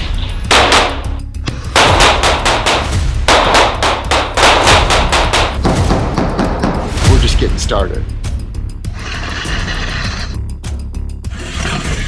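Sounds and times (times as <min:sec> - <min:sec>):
background music: 0:00.0 - 0:12.0
rapid pistol fire: 0:00.5 - 0:01.1, 0:01.7 - 0:06.4.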